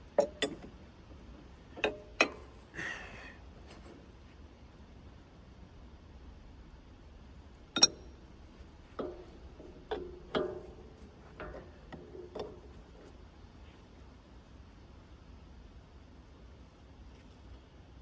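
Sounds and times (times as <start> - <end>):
metal clanking on metal: 0.0 - 2.8, 7.8 - 13.2.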